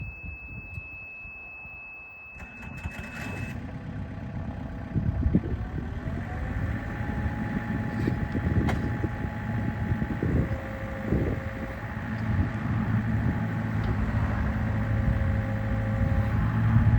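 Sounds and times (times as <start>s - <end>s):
high-pitched warning tone: 0.0s - 3.6s
diesel engine cranking and running: 0.0s - 16.9s
engine knocks: 7.9s - 16.2s.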